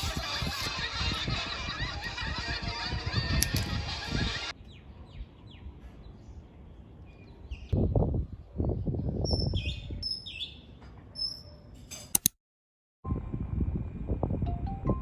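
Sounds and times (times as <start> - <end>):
small birds chirping: 1.9 - 8.0, 8.6 - 11.8.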